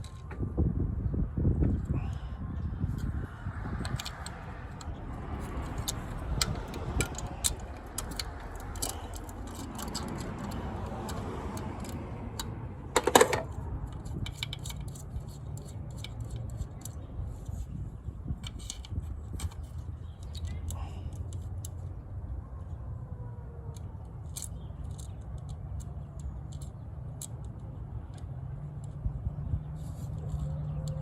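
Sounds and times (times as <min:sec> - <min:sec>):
metal tools clinking: 0:03.9 - 0:17.0.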